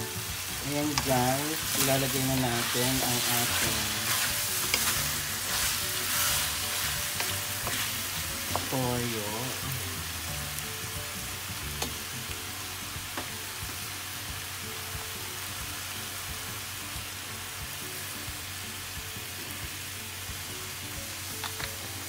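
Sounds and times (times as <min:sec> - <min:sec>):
chicken sizzling in pan: 0:00.0 - 0:22.0
wooden spoon stirring: 0:00.9 - 0:08.8.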